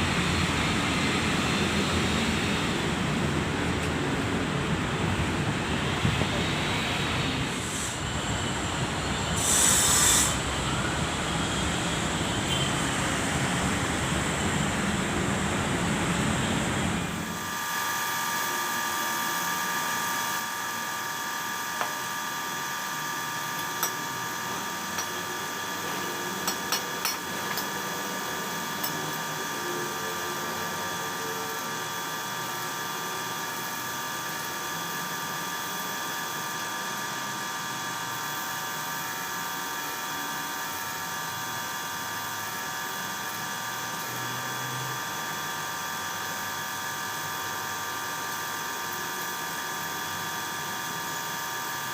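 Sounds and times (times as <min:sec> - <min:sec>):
power tool whining: 0:16.1 - 0:51.9.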